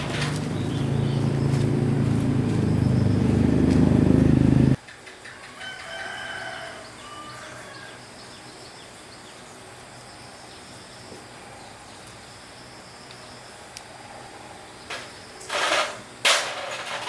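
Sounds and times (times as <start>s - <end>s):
rooster crowing: 0.6s - 8.1s.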